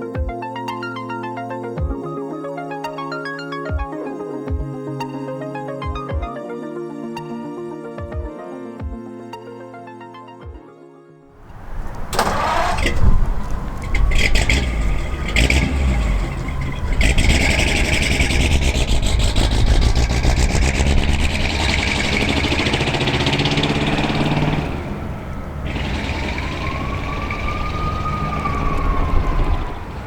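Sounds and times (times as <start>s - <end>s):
engine revving: 11.4s - 30.0s.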